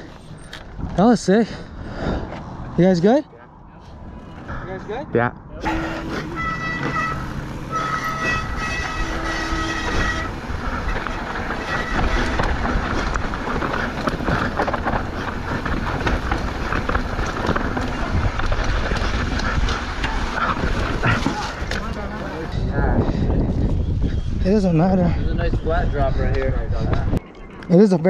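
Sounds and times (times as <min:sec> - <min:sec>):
bike rattling: 0:00.0 - 0:03.2, 0:05.6 - 0:28.0
bike tyres crunching on rocks: 0:06.0 - 0:22.4
wind on microphone: 0:08.2 - 0:27.2.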